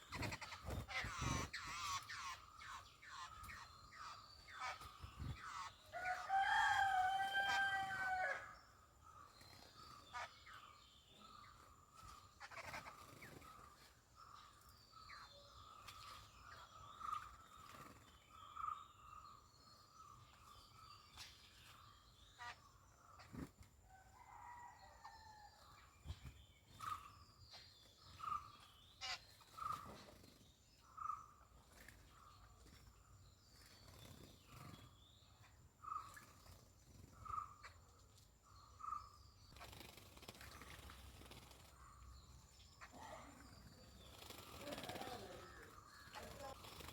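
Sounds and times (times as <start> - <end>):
small birds chirping: 0.0 - 46.9
rooster crowing: 6.0 - 8.6.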